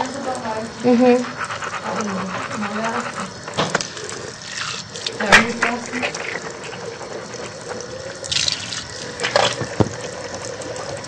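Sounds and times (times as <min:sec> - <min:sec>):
water running from tap: 0:00.0 - 0:11.0.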